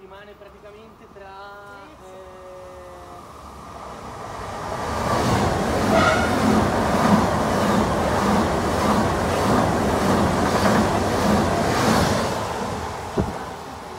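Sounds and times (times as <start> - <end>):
electric train passing at speed: 0.6 - 13.9
wheels clattering on rail: 5.0 - 13.6.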